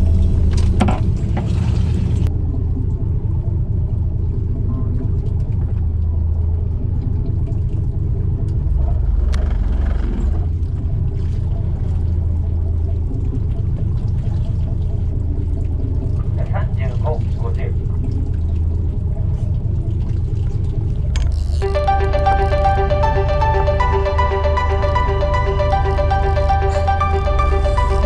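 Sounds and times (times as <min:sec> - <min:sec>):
boat engine rumbling: 0:00.0 - 0:28.0.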